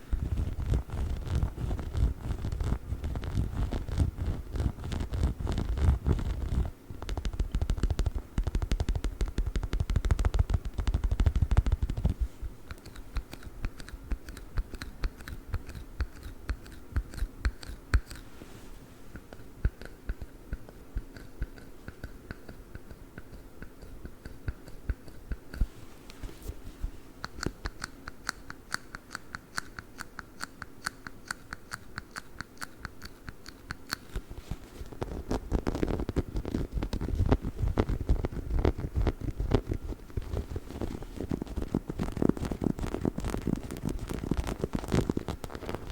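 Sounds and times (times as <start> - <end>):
fingers scratching and tapping toy: 0.1 - 18.3, 19.1 - 25.7, 27.2 - 45.9.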